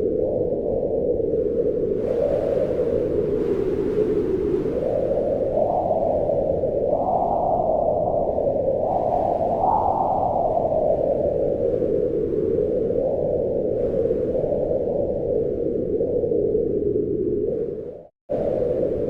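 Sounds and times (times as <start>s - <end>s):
wind howling: 0.0s - 19.0s.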